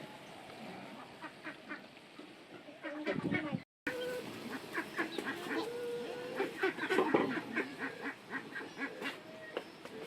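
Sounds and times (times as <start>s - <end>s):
ducks quacking: 0.9s - 1.9s, 2.5s - 9.3s.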